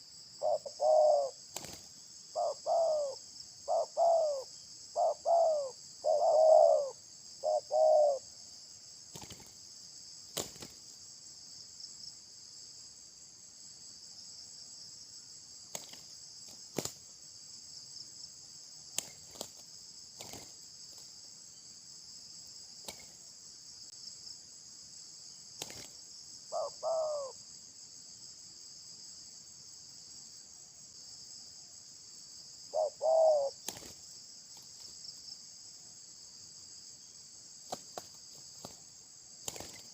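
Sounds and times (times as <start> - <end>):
insects humming: 0.0 - 39.9
bird calls: 0.4 - 8.3, 26.5 - 27.4, 32.7 - 33.9.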